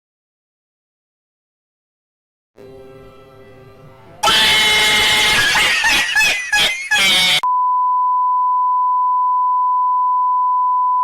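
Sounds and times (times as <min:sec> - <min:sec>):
harsh distorted stuttering sound: 0:04.2 - 0:07.4.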